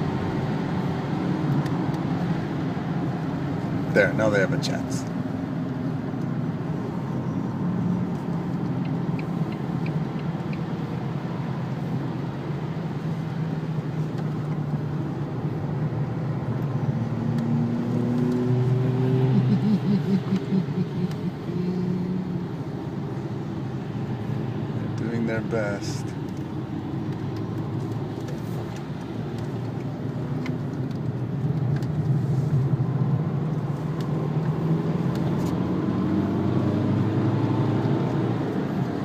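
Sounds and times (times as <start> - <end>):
car cabin engine and road drone: 0.0 - 39.0
cars accelerating past: 16.9 - 22.4, 34.0 - 39.0.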